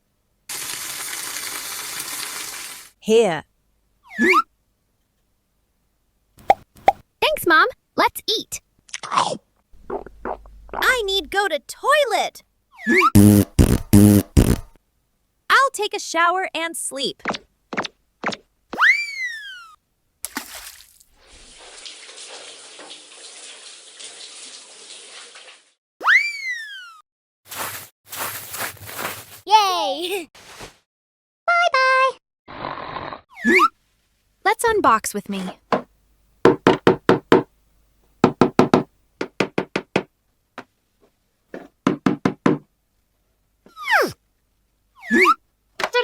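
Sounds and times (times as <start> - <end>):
shower water running: 0.5 - 3.0, 20.6 - 25.8.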